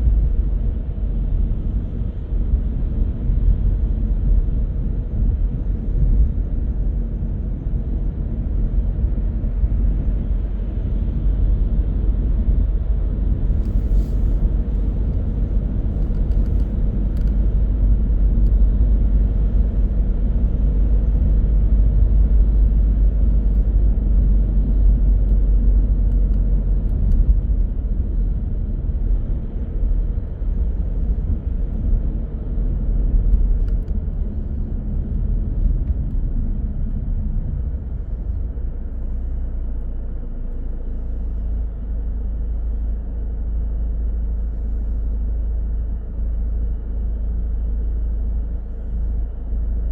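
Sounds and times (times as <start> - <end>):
car engine and road noise: 0.0 - 49.9.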